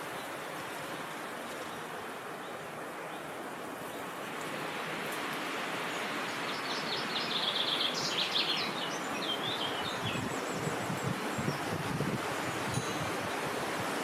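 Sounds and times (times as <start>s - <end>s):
songbird chirping: 5.8s - 11.9s.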